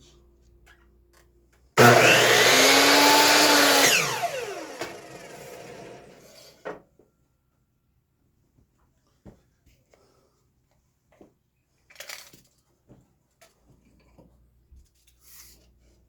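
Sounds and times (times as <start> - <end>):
saw spinning down whine: 1.8 - 6.3
electric saw running: 1.8 - 6.4.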